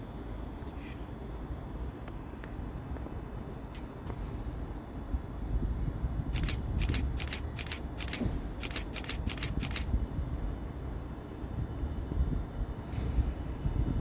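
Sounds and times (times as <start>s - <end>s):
sharp high-pitched clicks: 6.4s - 9.9s.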